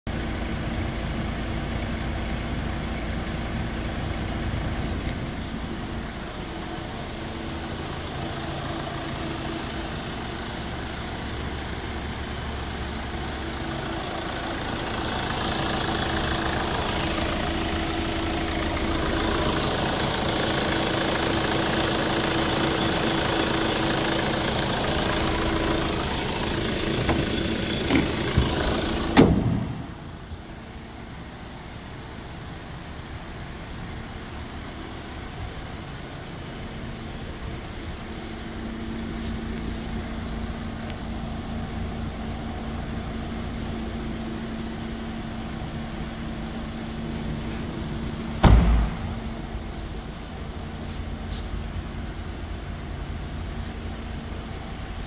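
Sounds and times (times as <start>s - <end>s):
car engine idling: 0.1s - 55.0s
sharp knock: 48.4s - 49.2s.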